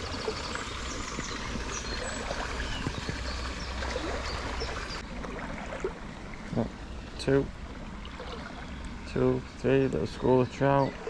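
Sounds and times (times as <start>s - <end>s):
river water gurgling over stones: 0.0s - 6.8s.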